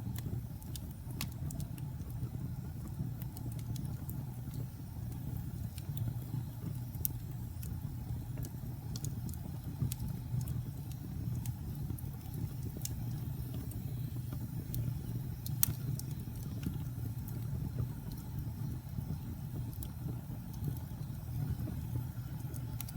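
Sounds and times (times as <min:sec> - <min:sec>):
fire roaring in fireplace: 0:00.0 - 0:22.9
wood crackling and popping: 0:00.0 - 0:22.9.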